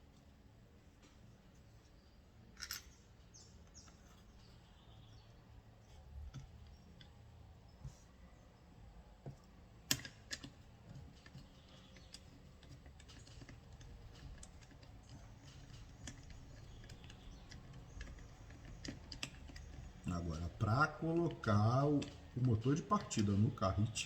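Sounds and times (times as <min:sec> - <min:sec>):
clicks and taps of metal tools: 0:02.6 - 0:03.0, 0:09.2 - 0:23.3.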